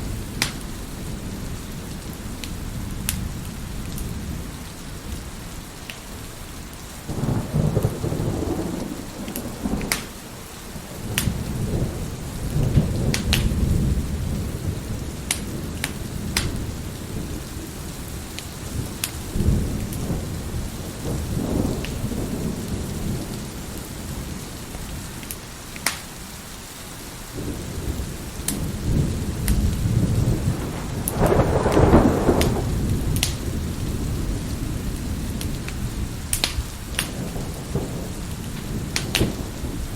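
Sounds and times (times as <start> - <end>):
steady rain: 0.0 - 39.9
wood fire crackling and popping: 0.4 - 0.6, 9.3 - 10.2, 11.1 - 11.4, 12.8 - 13.6, 15.2 - 16.6, 25.2 - 26.1, 30.4 - 33.5, 35.3 - 37.2, 38.3 - 39.5
thunder rolling: 7.1 - 24.4, 27.4 - 39.9.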